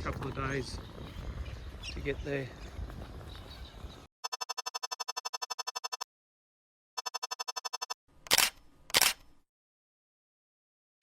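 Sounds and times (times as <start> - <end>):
rapid buzzy electronic beeping: 4.2 - 6.0, 7.0 - 8.0
sharp snaps like camera shutter: 7.4 - 9.3.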